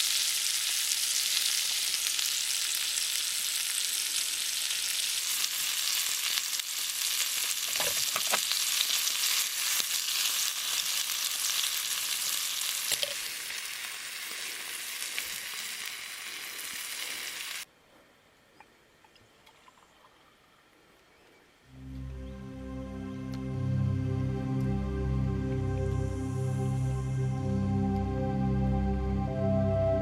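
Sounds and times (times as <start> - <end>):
food sizzling in a pan: 0.0 - 17.6.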